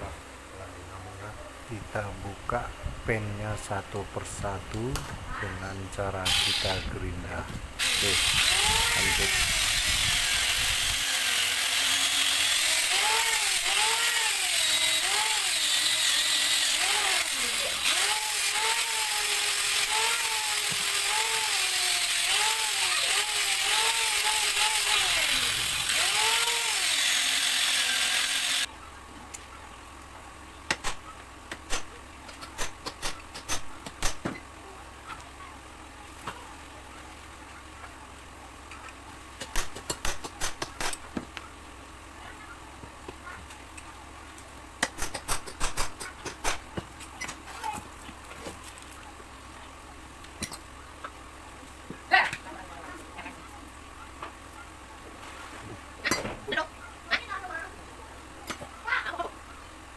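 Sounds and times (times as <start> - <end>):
angle grinder grinding metal: 6.1 - 28.7.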